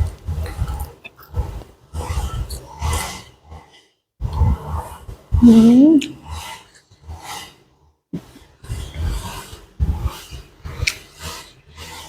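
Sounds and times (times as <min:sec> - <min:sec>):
person breathing: 0:05.4 - 0:06.4
chewing and smacking: 0:10.6 - 0:12.0.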